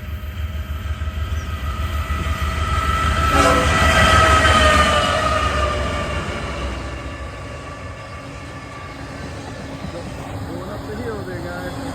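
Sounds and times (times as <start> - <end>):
diesel locomotive engine rumble: 0.0 - 11.9
train air horn chord: 3.2 - 7.5.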